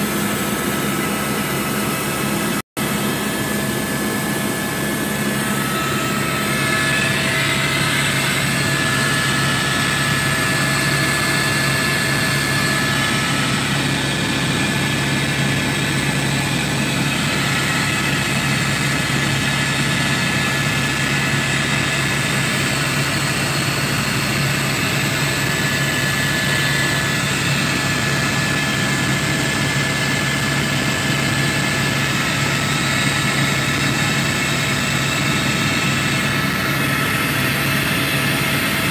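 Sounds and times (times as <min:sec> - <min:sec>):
helicopter engine and rotor drone: 0:00.0 - 0:38.9.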